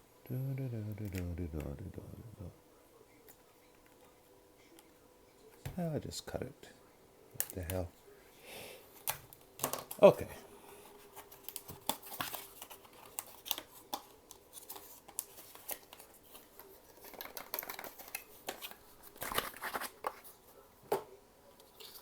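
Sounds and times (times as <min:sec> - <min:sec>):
cardboard and plastic rustling: 0:09.0 - 0:22.0
packaging clicks: 0:11.2 - 0:20.1.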